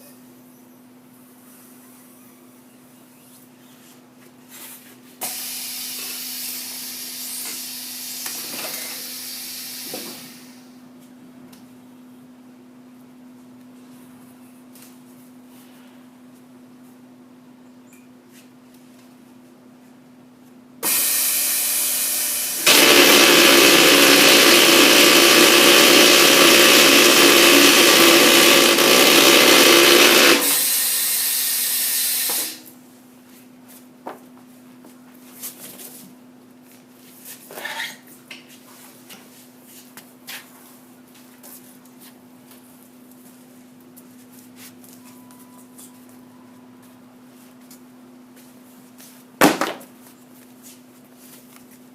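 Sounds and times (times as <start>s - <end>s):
harsh tire cutting noise: 20.8s - 32.7s.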